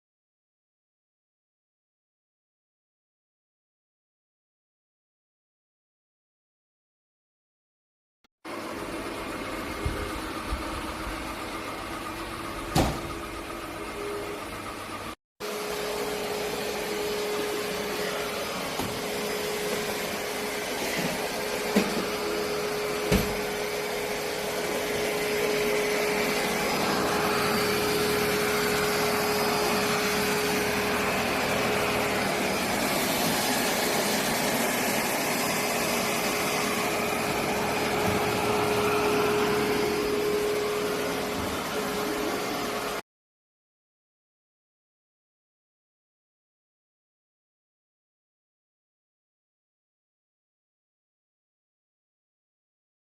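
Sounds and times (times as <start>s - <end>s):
robot vacuum whirring: 8.5s - 43.0s.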